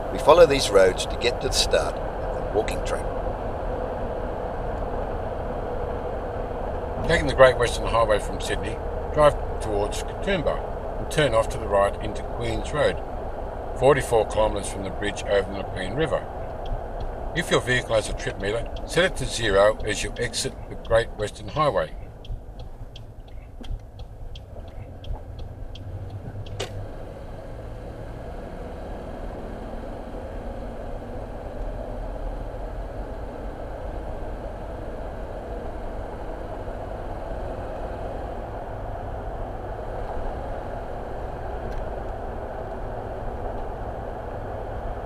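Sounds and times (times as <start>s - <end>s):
car engine and road noise: 0.0s - 45.0s
turn indicator ticking: 8.5s - 27.2s.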